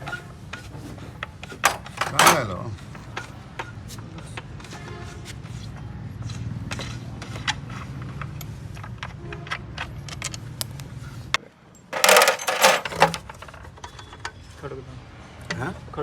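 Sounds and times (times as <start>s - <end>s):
metallic jangling and clattering: 1.6s - 2.5s, 12.0s - 13.5s.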